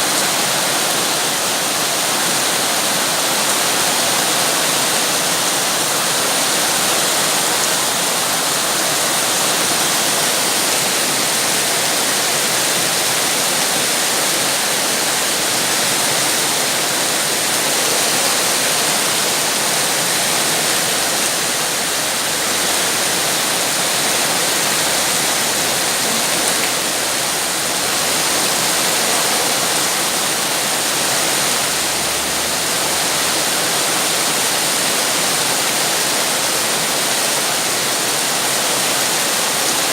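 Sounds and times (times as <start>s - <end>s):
rain falling steadily: 0.0s - 39.9s.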